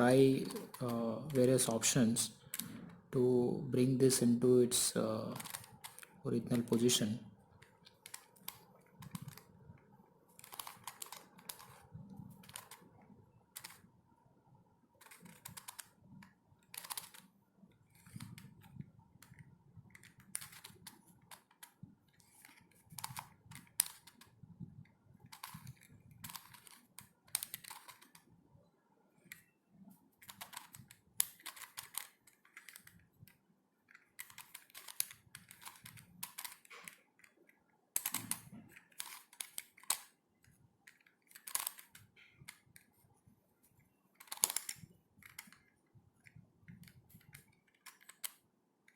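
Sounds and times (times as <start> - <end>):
plastic puzzle cube clicking: 0.3 - 1.8, 2.4 - 3.1, 5.2 - 13.9, 15.0 - 28.3, 29.2 - 29.5, 30.2 - 42.9, 44.1 - 48.9.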